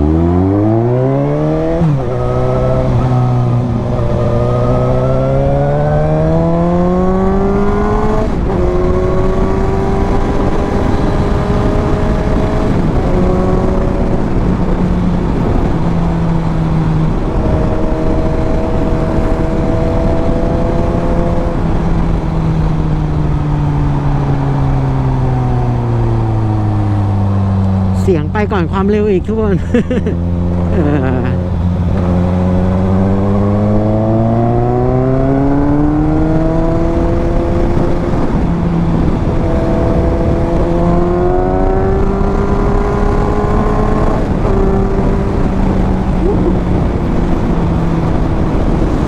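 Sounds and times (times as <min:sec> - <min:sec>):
wind rushing: 0:00.0 - 0:28.8
motorcycle engine and exhaust: 0:00.0 - 0:49.0.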